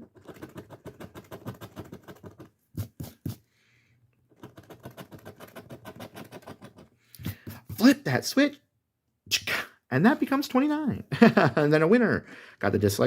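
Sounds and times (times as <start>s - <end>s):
scratch-off ticket being scraped: 0.0s - 3.4s, 4.3s - 7.9s.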